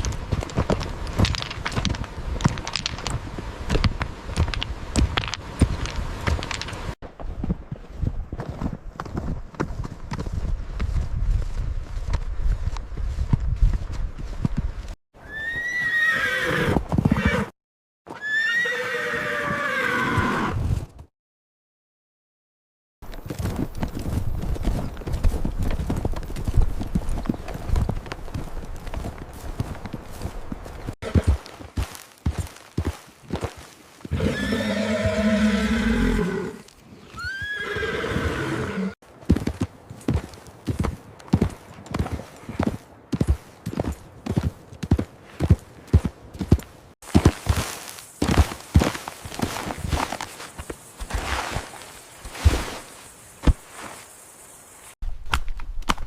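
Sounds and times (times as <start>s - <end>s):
horse hoofbeats: 0.0s - 17.5s, 23.0s - 51.2s
horse neighing: 15.2s - 17.5s, 18.1s - 20.6s, 34.1s - 39.0s.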